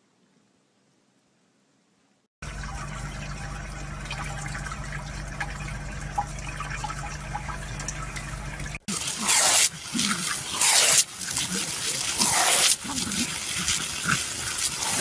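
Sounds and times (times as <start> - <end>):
low hum: 2.4 - 8.9.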